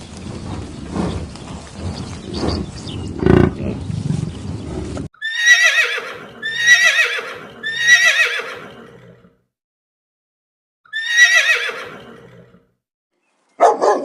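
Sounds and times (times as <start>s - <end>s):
noisy rumbling: 0.0s - 5.1s
horse whinnying: 5.2s - 9.3s, 10.9s - 12.6s.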